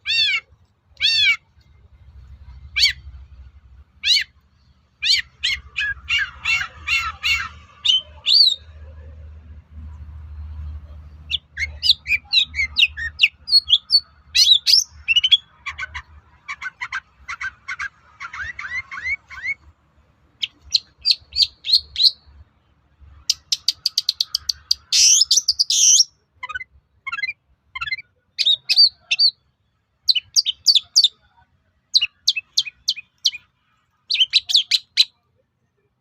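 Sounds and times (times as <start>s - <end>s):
harsh rasping bird call: 0.0s - 1.5s, 5.0s - 8.7s
bird singing chirps and trills: 5.0s - 8.8s, 11.1s - 19.7s, 20.4s - 22.3s, 23.2s - 29.5s, 30.1s - 35.2s.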